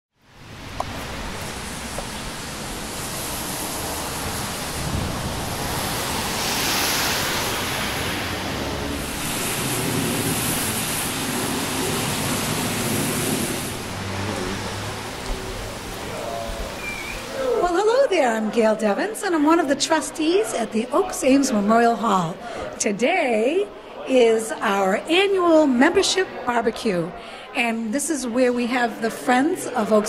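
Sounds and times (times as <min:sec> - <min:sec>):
rain falling: 0:00.3 - 0:18.1.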